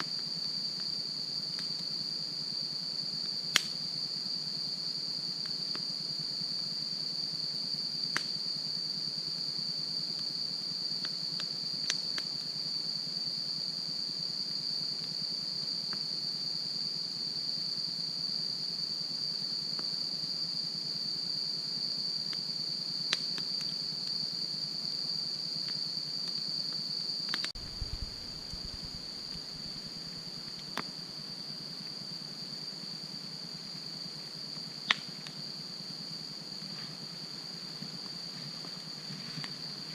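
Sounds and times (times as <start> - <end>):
crickets trilling: 0.0 - 39.9
campfire crackling and popping: 8.0 - 8.4, 27.3 - 31.0, 34.6 - 35.4
low rumble: 27.6 - 29.7.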